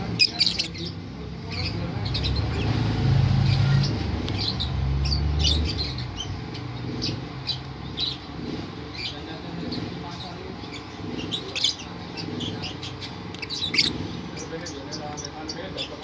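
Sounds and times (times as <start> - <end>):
lovebird chirping: 0.1 - 2.6, 10.6 - 16.0.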